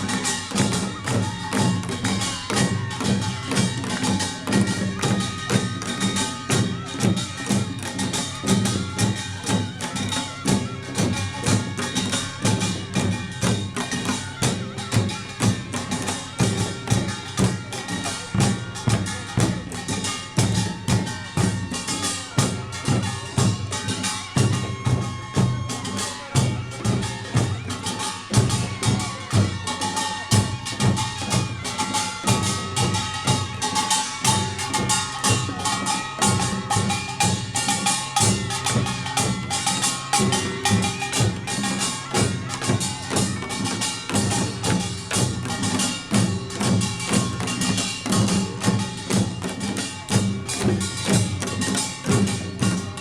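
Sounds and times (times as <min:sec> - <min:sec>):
drums beating: 0:00.0 - 0:53.0.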